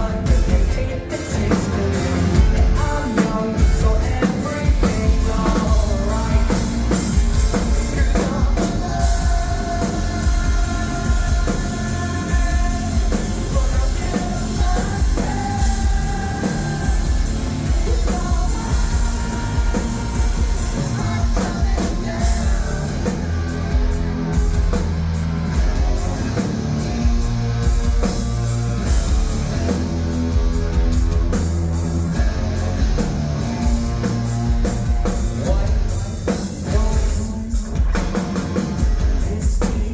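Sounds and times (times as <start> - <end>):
person singing: 0.0 - 24.7, 35.0 - 39.9
drum kit: 0.0 - 39.9
electric guitars: 0.0 - 39.9.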